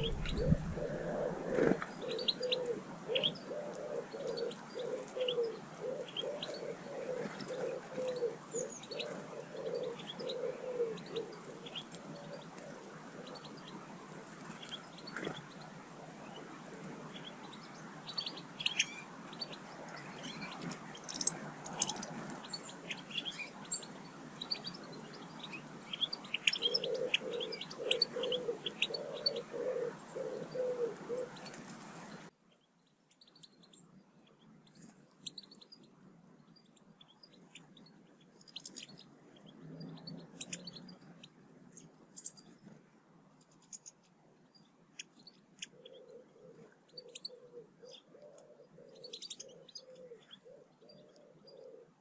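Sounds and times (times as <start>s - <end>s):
woodpigeon cooing: 0.0s - 13.6s, 26.4s - 32.2s, 45.6s - 52.0s
background hiss: 0.0s - 32.4s
songbirds chirping: 0.0s - 52.0s.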